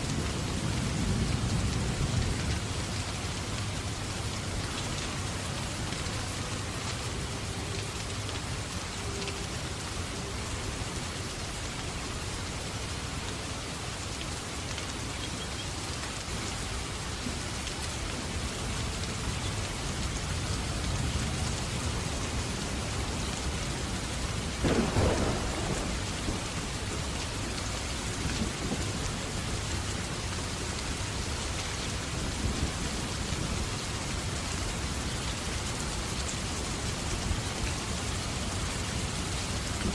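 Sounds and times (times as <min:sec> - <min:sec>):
steady rain falling: 0:00.0 - 0:39.9
thunder clap and rumble: 0:24.4 - 0:27.0, 0:28.2 - 0:29.6.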